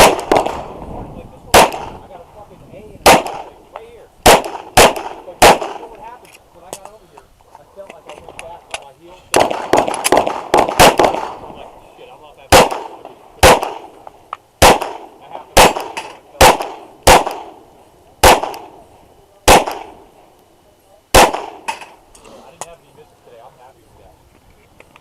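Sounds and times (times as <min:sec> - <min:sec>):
pistol shots: 0:00.0 - 0:00.8, 0:01.5 - 0:02.0, 0:03.0 - 0:03.6, 0:04.2 - 0:06.0, 0:09.3 - 0:11.6, 0:12.5 - 0:14.0, 0:14.6 - 0:18.8, 0:19.4 - 0:20.0, 0:21.1 - 0:22.0.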